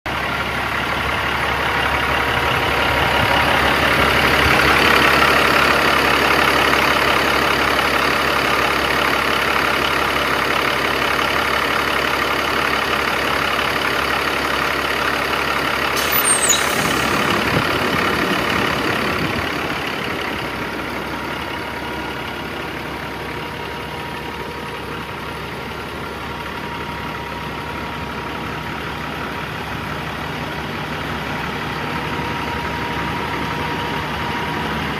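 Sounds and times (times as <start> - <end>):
diesel truck engine idling: 0.1 - 16.0, 17.1 - 34.9
short click: 16.0 - 17.6.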